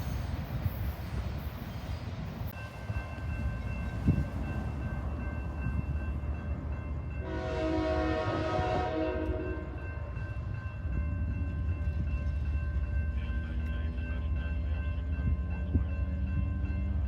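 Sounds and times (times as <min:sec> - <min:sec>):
low rumble of train: 0:00.0 - 0:17.0
train horn blast: 0:07.2 - 0:09.8.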